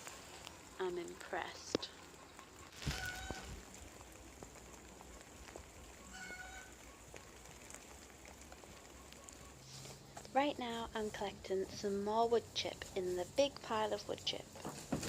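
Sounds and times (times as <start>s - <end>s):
light rain falling: 0.0s - 15.0s
short bird calls: 6.0s - 7.0s.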